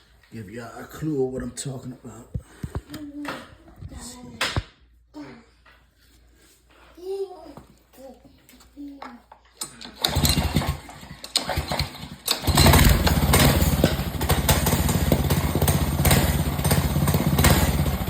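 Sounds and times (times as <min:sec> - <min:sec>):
small engine starting and running: 0:09.6 - 0:18.0.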